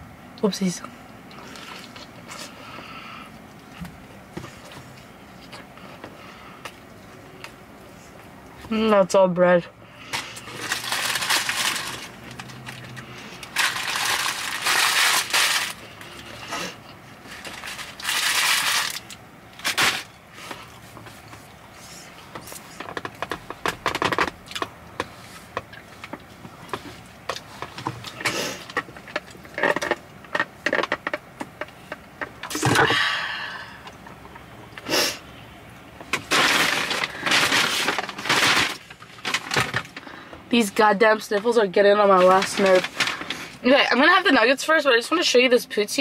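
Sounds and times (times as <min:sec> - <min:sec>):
chewing and mouth sounds: 0:01.3 - 0:02.6
crackles and crinkles: 0:10.0 - 0:32.8, 0:36.0 - 0:44.3.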